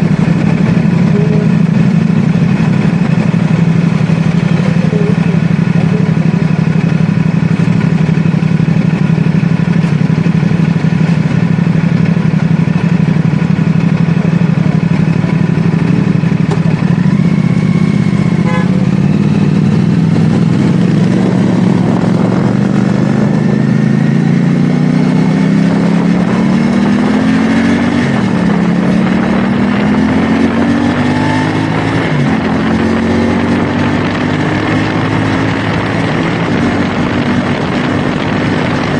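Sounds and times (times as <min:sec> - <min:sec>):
motorcycle engine revving: 0:00.0 - 0:38.9
wind noise: 0:19.0 - 0:38.9.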